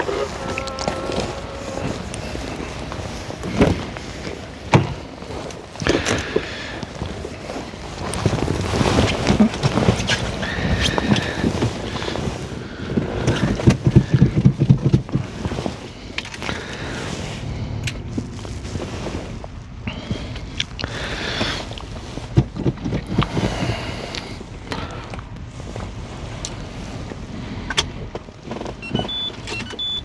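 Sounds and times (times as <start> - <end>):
diesel engine knocking: 16.3 - 28.6.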